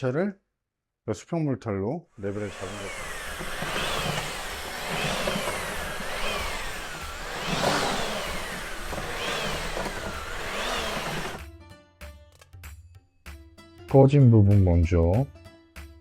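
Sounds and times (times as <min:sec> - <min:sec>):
power tool motor revving: 0:02.2 - 0:11.4
steady whirring hiss: 0:02.3 - 0:11.4.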